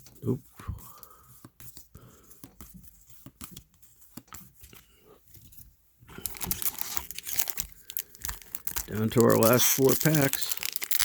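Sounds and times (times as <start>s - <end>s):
wrapper tearing and crinkling: 6.2s - 11.0s.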